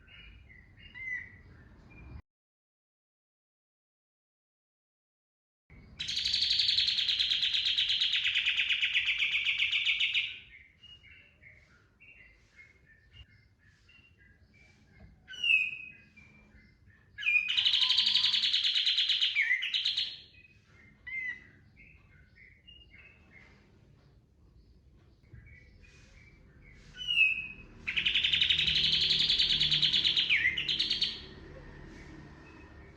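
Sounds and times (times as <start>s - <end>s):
soft bird chirps: 0.0s - 2.2s, 5.7s - 32.9s
songbird singing rapid runs: 5.9s - 23.5s, 24.6s - 31.4s
short sweeping bird calls: 17.2s - 21.4s, 25.8s - 31.3s.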